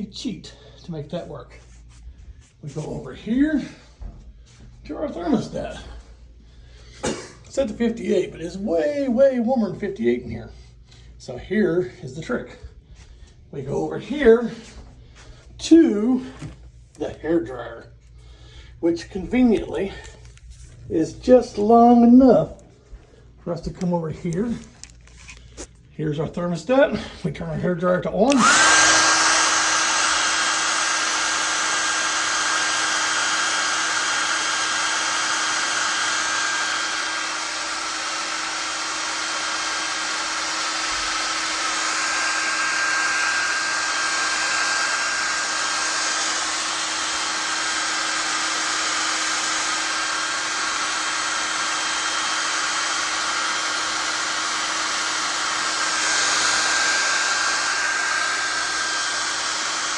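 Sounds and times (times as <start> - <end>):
hair dryer running: 28.3 - 59.9.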